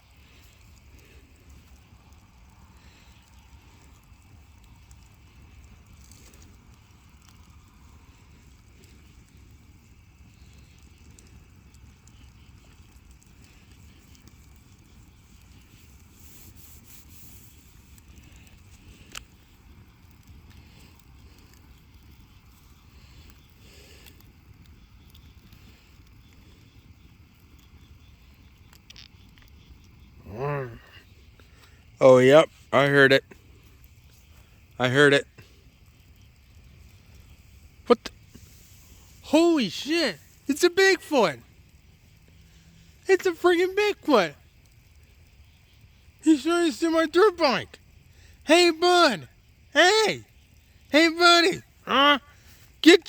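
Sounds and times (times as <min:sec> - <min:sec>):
low outdoor rumble: 0:00.0 - 0:24.0
bonfire crackling: 0:00.0 - 0:53.0
fire snapping sharply: 0:00.1 - 0:26.8, 0:28.3 - 0:53.0.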